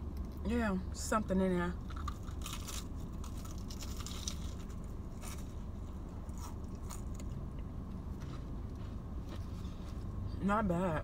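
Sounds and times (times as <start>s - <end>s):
low hum: 0.0s - 11.0s
person chewing crunchy food: 1.8s - 10.2s.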